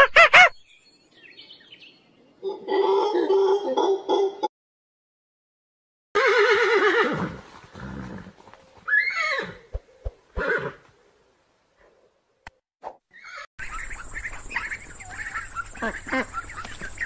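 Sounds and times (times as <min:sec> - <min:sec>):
horse whinnying: 0:06.2 - 0:08.3, 0:08.9 - 0:09.6, 0:10.4 - 0:10.8.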